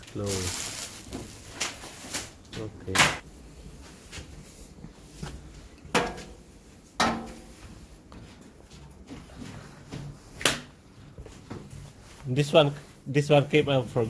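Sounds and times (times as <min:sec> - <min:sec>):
washing machine parts knocking: 0:07.0 - 0:07.5.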